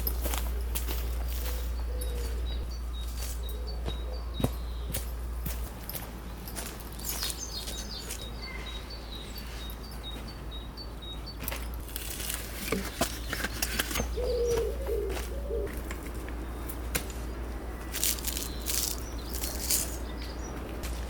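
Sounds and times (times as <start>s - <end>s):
bird chirps: 0.0s - 5.6s, 6.3s - 11.8s, 12.8s - 15.7s, 17.6s - 20.6s
bird peeping: 7.0s - 11.5s, 12.9s - 15.7s, 17.8s - 20.6s
lower bird call: 13.9s - 15.7s.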